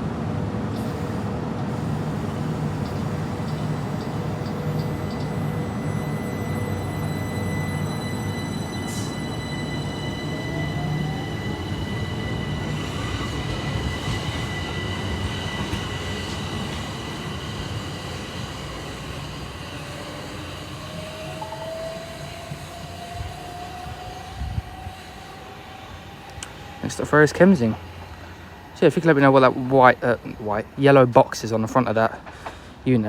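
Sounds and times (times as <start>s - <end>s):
electric train running hum: 0.0s - 32.8s
electrical whines rising in pitch: 1.8s - 27.9s.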